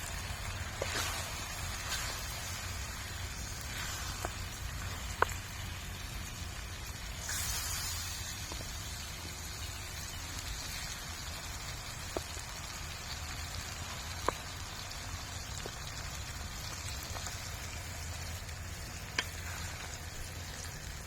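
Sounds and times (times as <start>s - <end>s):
steady rain falling: 0.0s - 21.0s
sharp taps of raindrops: 12.0s - 12.6s, 13.8s - 14.8s, 15.4s - 16.0s, 19.0s - 19.9s.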